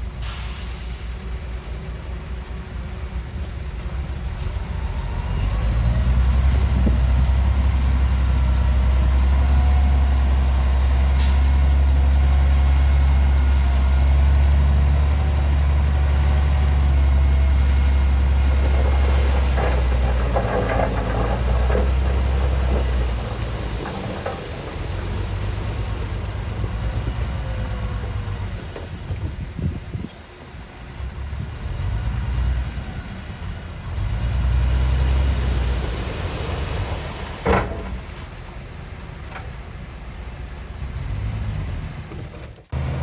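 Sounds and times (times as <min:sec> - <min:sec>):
heavy diesel engine running: 0:00.0 - 0:43.0
metallic clatter: 0:18.4 - 0:25.5.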